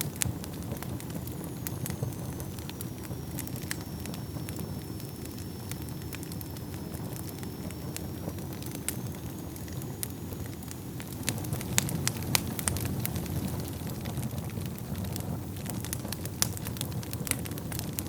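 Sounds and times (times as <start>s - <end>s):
faint high whistle: 0.0s - 11.6s
fire crackles and pops: 0.0s - 18.0s
low rumble of fire: 0.0s - 18.0s.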